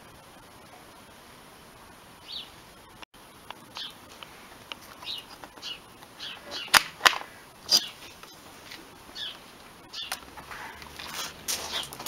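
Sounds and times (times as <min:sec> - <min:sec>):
small bird chirping: 0:02.2 - 0:02.6, 0:03.7 - 0:04.1, 0:04.9 - 0:06.8, 0:07.7 - 0:08.4, 0:09.1 - 0:10.2.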